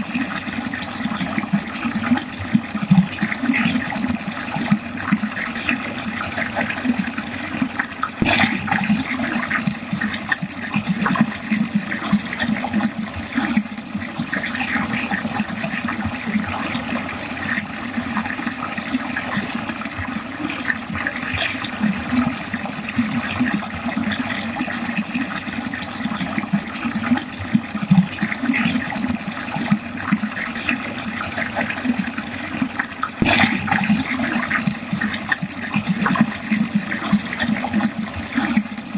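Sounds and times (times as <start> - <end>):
water gurgling down a drain: 0.0 - 38.9
sharp water splash: 8.1 - 10.4, 33.1 - 36.3.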